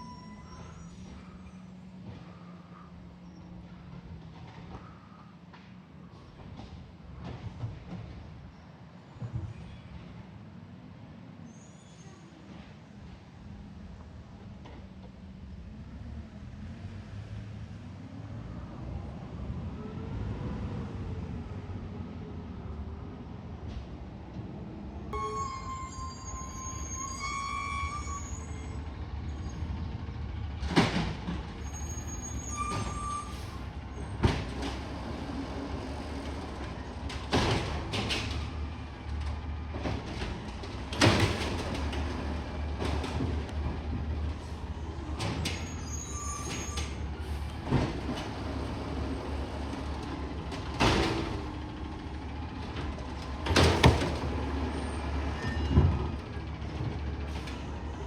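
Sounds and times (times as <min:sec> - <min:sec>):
garbage truck engine rumble: 0:22.6 - 0:58.0.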